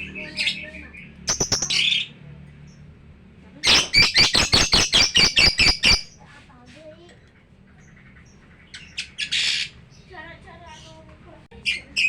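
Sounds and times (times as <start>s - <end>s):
lovebird chirping: 1.3s - 2.1s, 3.6s - 6.2s.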